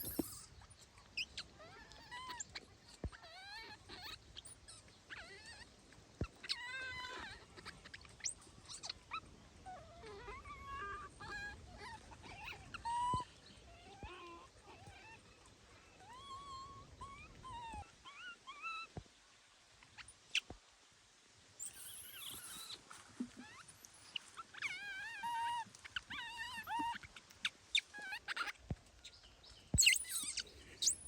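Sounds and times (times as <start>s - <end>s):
baby monkeys crying: 0.0s - 0.5s, 1.2s - 5.7s, 6.3s - 9.0s, 10.0s - 15.2s, 21.6s - 28.6s, 29.7s - 31.0s.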